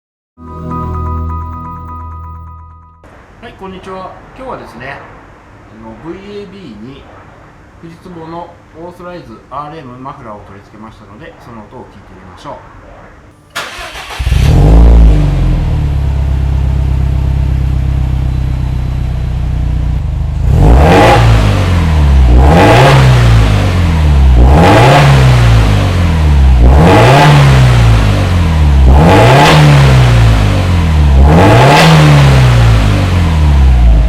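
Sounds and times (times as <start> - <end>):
car engine idling and revving: 13.5 - 34.0.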